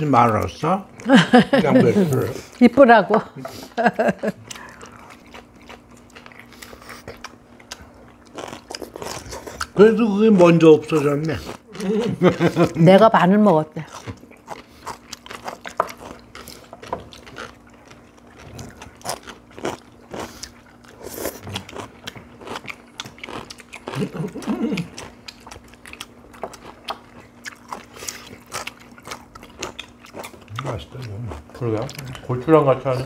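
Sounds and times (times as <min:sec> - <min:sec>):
people chewing and crunching food: 0:00.0 - 0:33.0.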